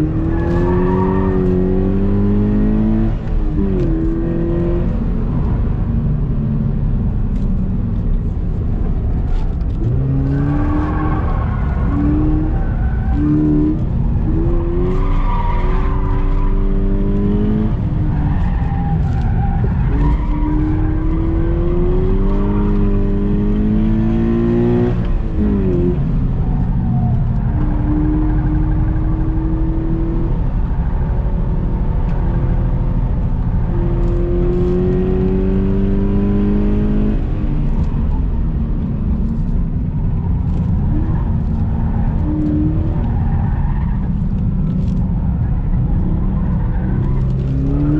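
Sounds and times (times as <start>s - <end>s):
car engine accelerating: 0.0s - 47.9s
road and tyre noise: 0.0s - 47.9s.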